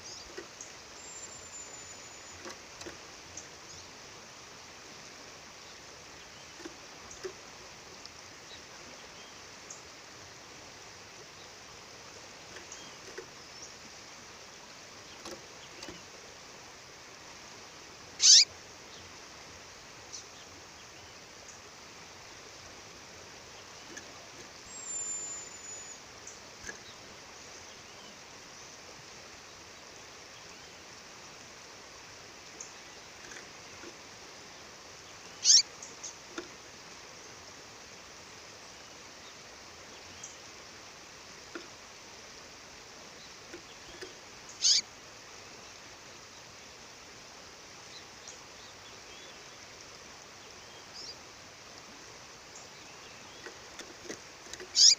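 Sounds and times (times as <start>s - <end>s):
faint bird chirps: 0.0s - 2.6s, 18.2s - 19.1s, 23.4s - 28.8s, 34.6s - 36.2s, 43.2s - 44.9s, 50.4s - 51.2s, 54.5s - 54.9s
bird calling: 18.2s - 18.5s, 35.4s - 36.2s, 43.6s - 44.9s, 54.6s - 54.9s.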